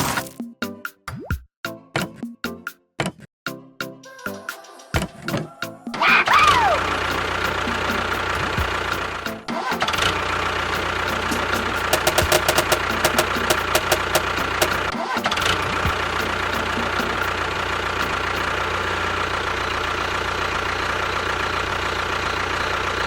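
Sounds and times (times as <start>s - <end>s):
engine idling: 6.6s - 23.0s
rapid knocks: 11.9s - 14.9s.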